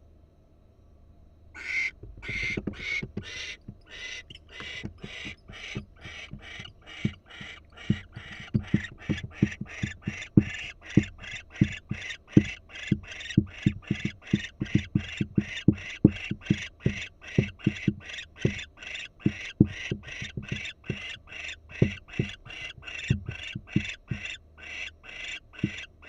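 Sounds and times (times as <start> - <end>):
barn owls hissing: 1.6 - 14.3
low knocks: 2.0 - 24.3.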